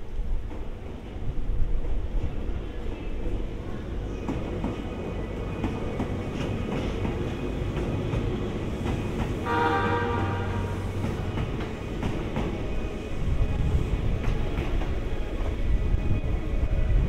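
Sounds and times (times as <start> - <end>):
train horn: 9.4 - 11.0.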